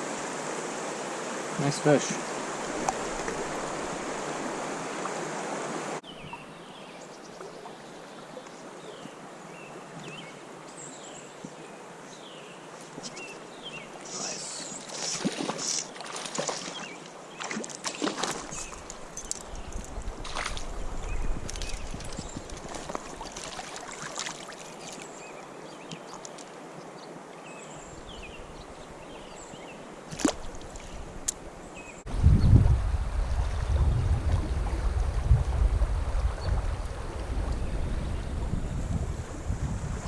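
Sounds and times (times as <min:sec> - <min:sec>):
water splashes: 0:00.0 - 0:06.4, 0:12.8 - 0:26.8, 0:30.0 - 0:31.5, 0:32.6 - 0:38.0
creek water flowing: 0:00.0 - 0:40.0
wind rumbling on microphone: 0:18.5 - 0:23.3, 0:32.0 - 0:40.0.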